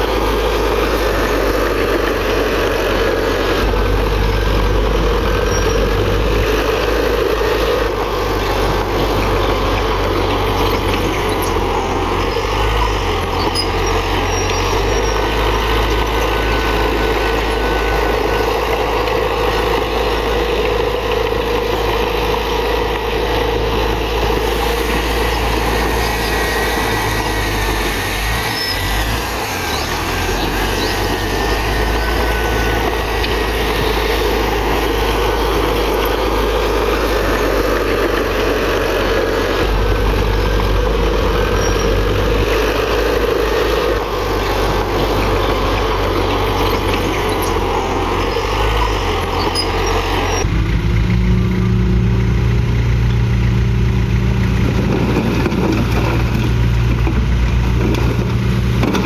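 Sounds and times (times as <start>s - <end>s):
heavy diesel machinery running: 0.0s - 59.0s
faint thin squeal: 28.4s - 33.8s.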